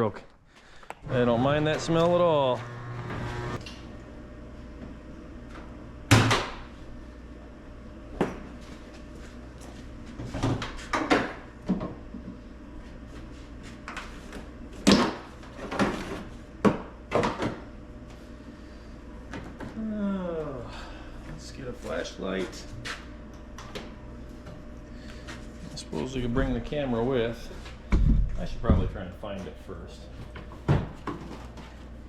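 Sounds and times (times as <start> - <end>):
low steady hum: 0.7 - 9.8.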